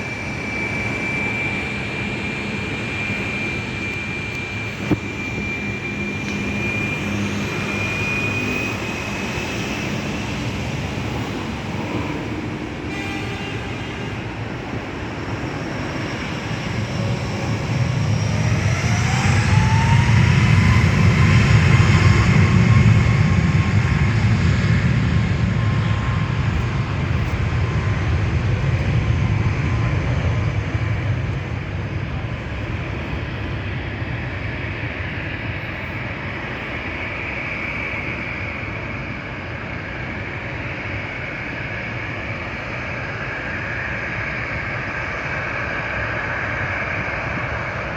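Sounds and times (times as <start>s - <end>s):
engine whine rising in pitch: 0.0s - 13.2s, 14.6s - 31.6s
jet engines running: 0.0s - 47.9s.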